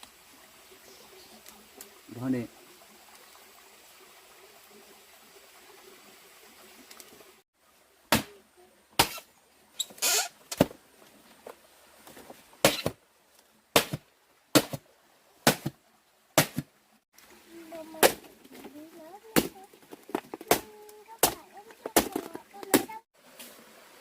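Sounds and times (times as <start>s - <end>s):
hand tool striking wood: 9.0s - 9.2s, 12.6s - 13.0s, 13.8s - 14.0s, 14.6s - 14.8s, 15.4s - 15.8s, 16.4s - 16.7s, 19.4s - 22.9s.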